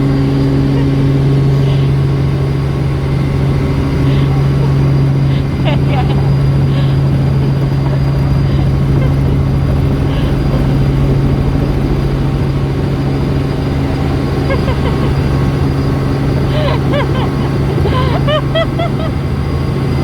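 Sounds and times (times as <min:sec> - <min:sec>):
helicopter engine and rotor: 0:00.0 - 0:20.0.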